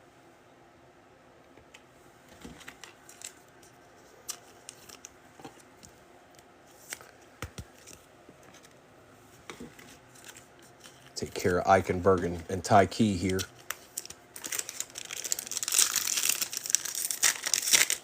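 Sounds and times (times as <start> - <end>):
cards and foil wrapper rustling: 2.4 - 5.6, 9.7 - 18.0.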